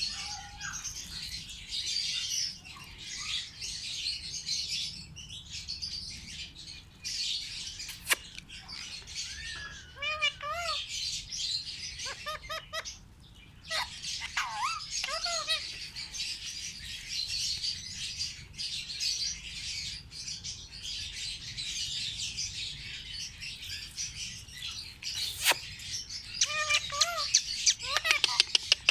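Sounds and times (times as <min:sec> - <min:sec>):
parrots chattering: 0:07.9 - 0:10.9, 0:11.9 - 0:13.0, 0:13.7 - 0:17.5, 0:23.6 - 0:28.9
whistled bird calls: 0:23.6 - 0:28.9.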